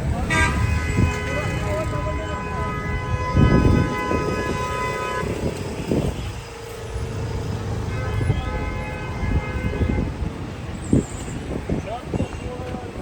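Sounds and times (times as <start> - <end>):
traffic rumble: 0.0 - 13.0
lower car horn: 0.2 - 6.5, 7.2 - 10.3
high multi-tone horn: 0.2 - 10.3.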